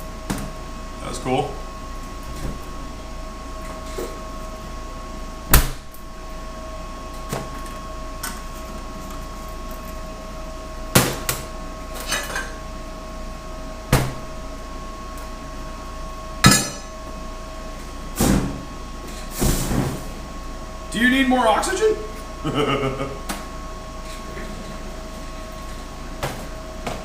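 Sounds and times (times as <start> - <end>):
steady shop hum: 0.0 - 27.0
sharp metal knocks and clanks: 16.4 - 16.9.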